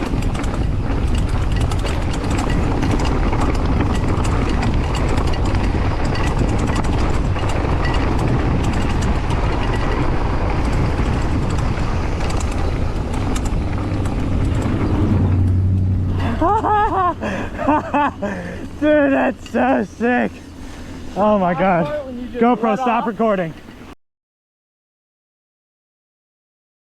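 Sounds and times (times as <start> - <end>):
wind rushing on microphone: 0.0 - 19.4
bike rattling: 0.0 - 24.0
tyres on dirt and rock: 0.0 - 24.0.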